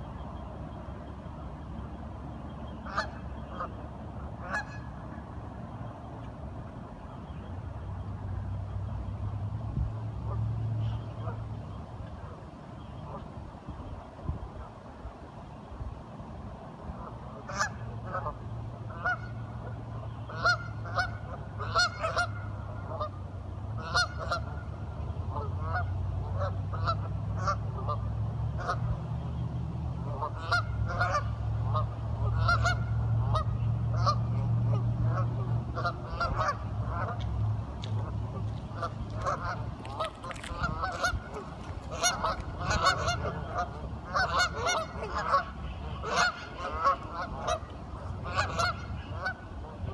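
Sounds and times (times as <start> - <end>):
ducks quacking: 4.4 - 5.0, 17.5 - 23.1, 23.8 - 24.7, 30.1 - 49.9.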